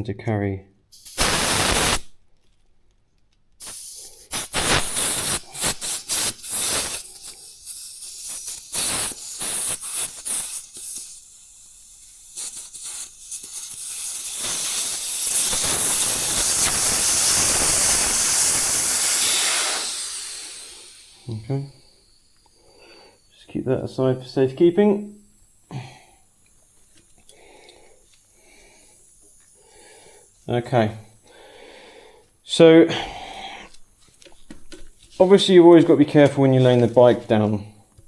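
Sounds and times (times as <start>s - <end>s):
air hissing from tube valve: 0.9s - 2.2s, 3.6s - 35.8s.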